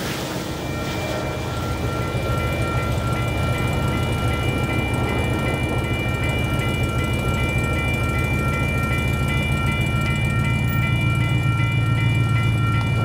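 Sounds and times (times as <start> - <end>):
freight train rumbling past: 0.0 - 13.0
steady high-pitched tones: 0.2 - 13.0.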